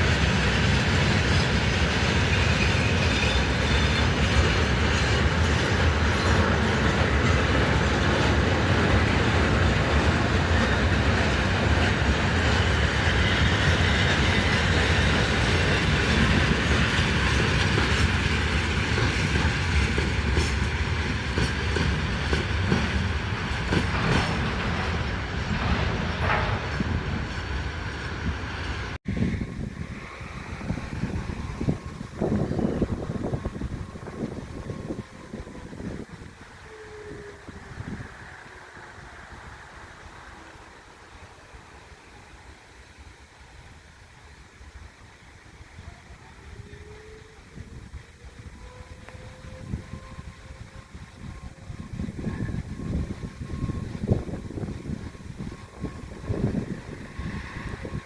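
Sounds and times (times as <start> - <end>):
train wheels clattering on rails: 0.0 - 40.9.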